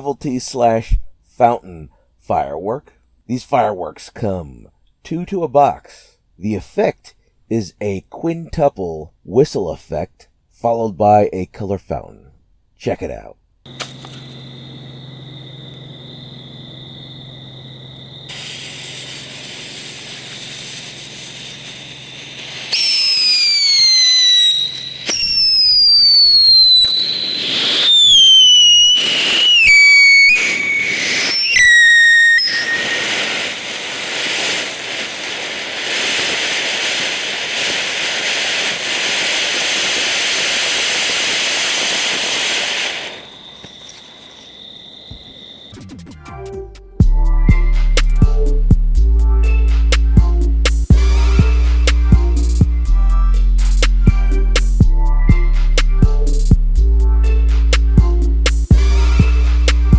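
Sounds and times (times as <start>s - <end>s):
firework fountain hissing: 13.7s - 45.7s, 50.7s - 54.8s, 58.5s - 59.9s
firework whistles falling in pitch: 13.7s - 45.8s, 47.0s - 48.7s, 49.4s - 56.6s, 58.5s - 59.9s.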